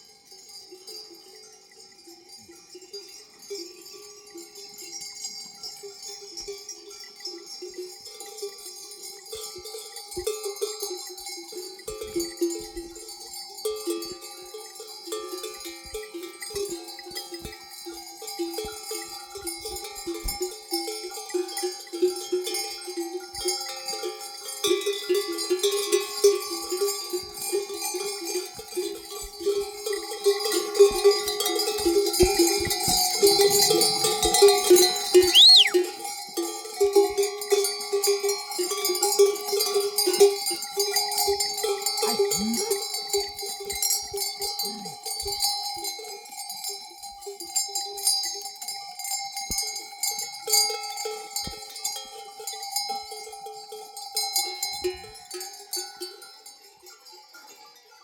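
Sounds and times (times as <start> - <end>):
sheep bells clanking: 0.0 - 58.0
short whistled note: 35.2 - 35.8.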